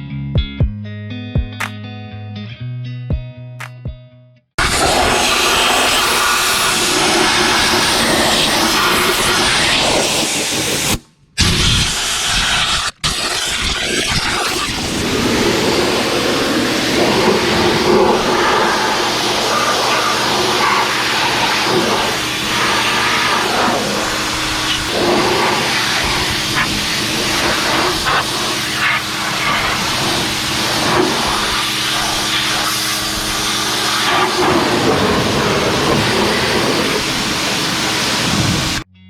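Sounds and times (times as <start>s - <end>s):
loud hiss: 4.6s - 38.8s
machine humming: 14.5s - 38.9s.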